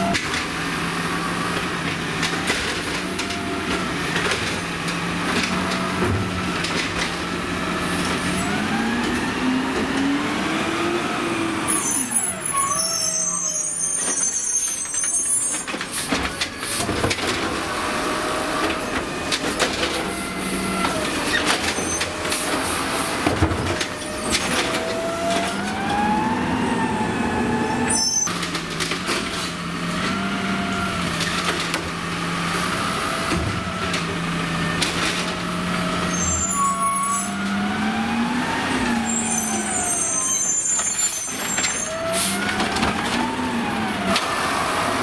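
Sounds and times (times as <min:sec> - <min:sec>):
garbage truck engine revving: 0:00.0 - 0:14.0, 0:15.9 - 0:45.0
high squealing: 0:11.6 - 0:15.7.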